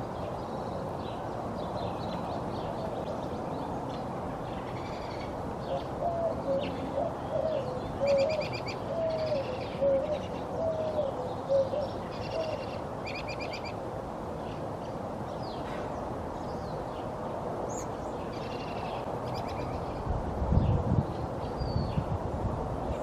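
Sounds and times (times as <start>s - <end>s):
low cooing bird: 4.6s - 13.8s.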